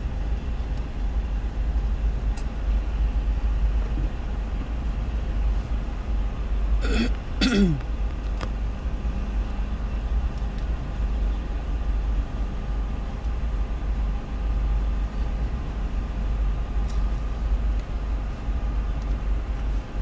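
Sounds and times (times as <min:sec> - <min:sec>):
person clearing throat: 0:06.8 - 0:07.8.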